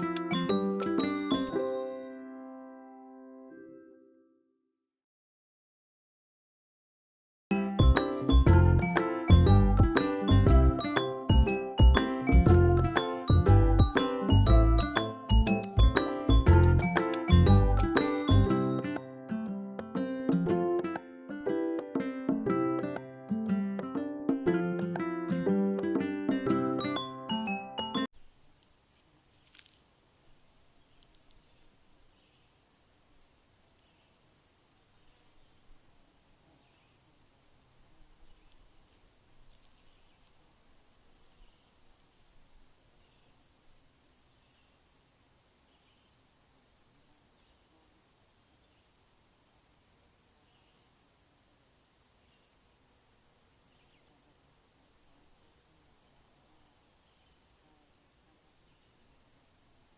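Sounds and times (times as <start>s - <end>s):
plucked-string music: 7.5s - 27.3s
insects trilling: 28.2s - 59.9s.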